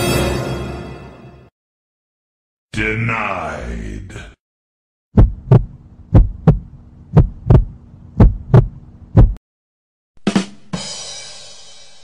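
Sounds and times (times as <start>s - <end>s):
heartbeat thumps: 5.1s - 9.4s
faint steady hum: 5.3s - 9.4s.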